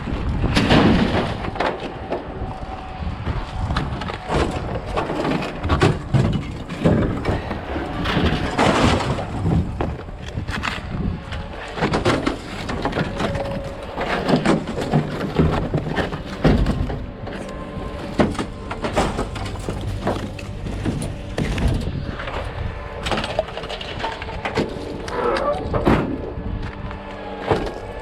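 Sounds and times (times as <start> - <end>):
scrap metal clanking and clattering: 4.0 - 22.4.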